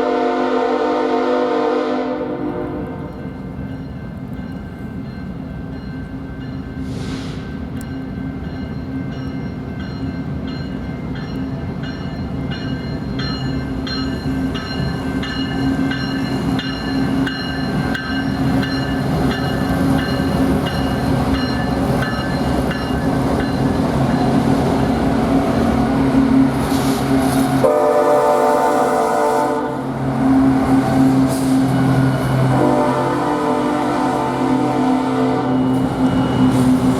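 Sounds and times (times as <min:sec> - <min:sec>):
locomotive air horn: 0:00.0 - 0:03.1, 0:27.6 - 0:30.5, 0:32.4 - 0:35.6
locomotive engine drone: 0:07.6 - 0:36.9.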